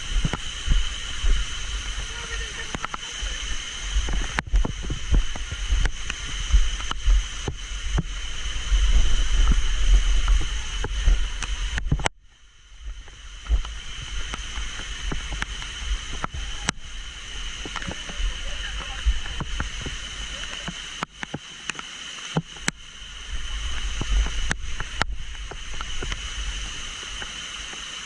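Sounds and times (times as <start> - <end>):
heavy low rumble: 0.0 - 20.9
water rushing and splashing: 0.0 - 28.0.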